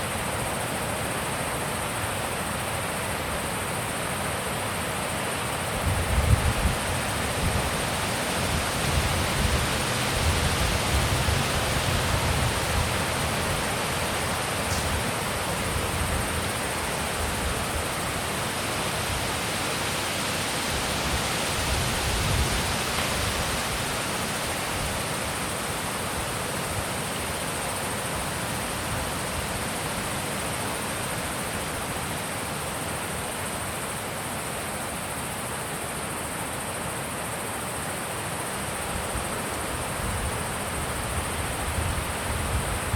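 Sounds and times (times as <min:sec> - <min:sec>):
wind blowing: 0:05.8 - 0:25.0.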